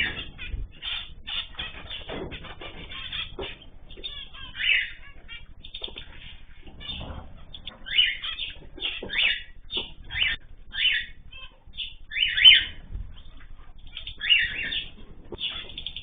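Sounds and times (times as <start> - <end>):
cage birds chirping: 0.0 - 16.0.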